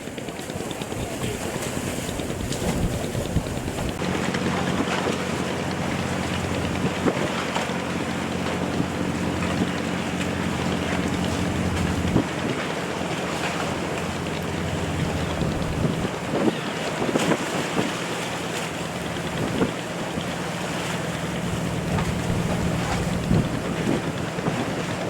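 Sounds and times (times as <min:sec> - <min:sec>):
boat engine running: 0:00.0 - 0:25.0
water rushing: 0:00.0 - 0:25.0
wind buffeting microphone: 0:00.1 - 0:25.0.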